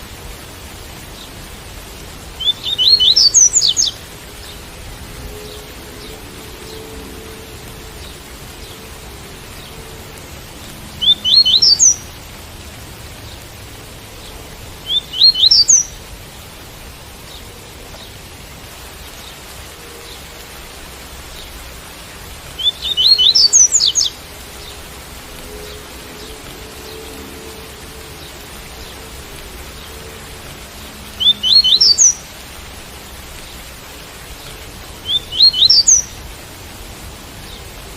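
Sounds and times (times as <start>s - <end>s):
rain hissing: 0.0s - 37.9s
bird singing: 2.4s - 4.6s, 11.0s - 12.1s, 14.8s - 16.0s, 22.6s - 30.4s, 31.1s - 32.3s, 35.0s - 36.2s.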